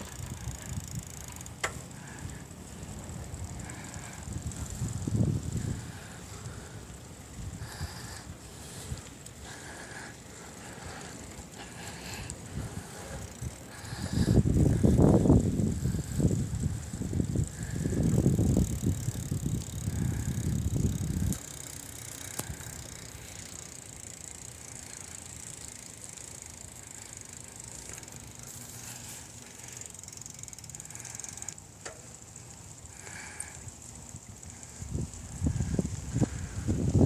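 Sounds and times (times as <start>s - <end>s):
faint clicks: 0.0s - 1.8s, 18.8s - 28.3s, 29.5s - 33.7s
wind and tyres rumbling: 0.0s - 37.0s.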